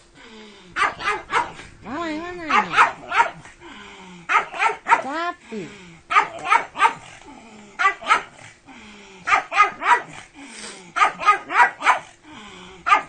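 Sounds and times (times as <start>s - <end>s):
dog barking excitedly: 0.8s - 1.7s, 2.4s - 3.5s, 4.3s - 5.2s, 6.1s - 7.2s, 7.8s - 8.5s, 9.3s - 10.3s, 10.9s - 12.2s.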